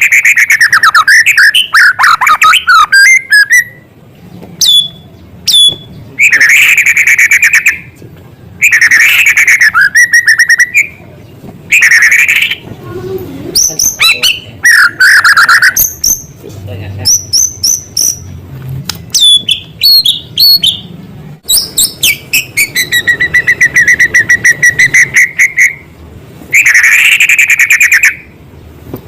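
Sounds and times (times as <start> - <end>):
bird whistles and chattering: 0.0 - 3.9, 4.6 - 8.0, 8.6 - 11.0, 11.7 - 12.7, 13.6 - 16.4, 17.0 - 18.4, 19.1 - 25.9, 26.5 - 28.3
songbird singing trilled phrases: 0.0 - 3.9, 4.6 - 7.9, 8.6 - 12.7, 13.6 - 16.4, 17.0 - 18.4, 19.1 - 25.9.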